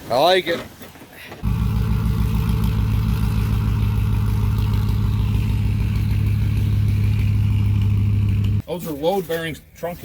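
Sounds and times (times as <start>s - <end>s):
car engine idling: 1.4s - 8.6s.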